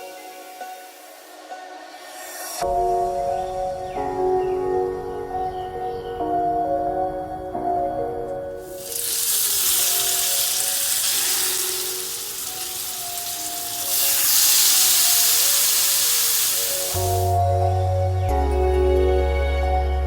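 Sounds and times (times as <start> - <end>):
food sizzling in a pan: 8.6 - 17.4.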